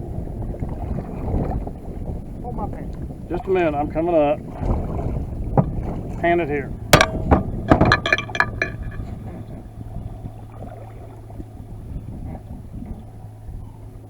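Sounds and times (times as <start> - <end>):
wind: 0.0 - 14.0
water noise: 4.3 - 11.7
sharp clinks and knocks: 7.0 - 9.2.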